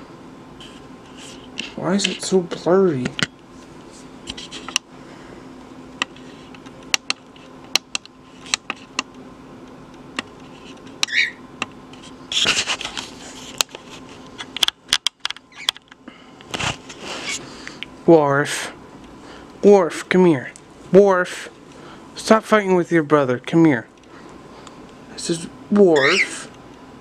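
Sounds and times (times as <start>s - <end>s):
bird chirp: 11.1s - 11.4s, 26.0s - 26.4s.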